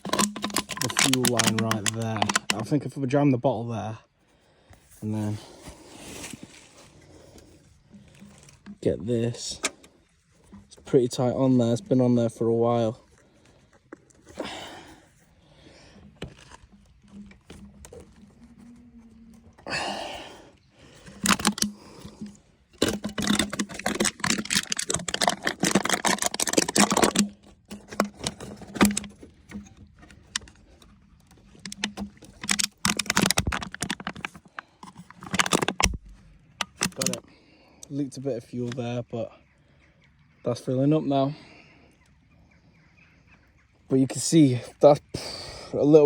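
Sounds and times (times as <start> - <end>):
clattering: 0.0 - 2.7, 21.0 - 37.2
hands working on a fuel line: 0.0 - 3.0, 4.1 - 39.6.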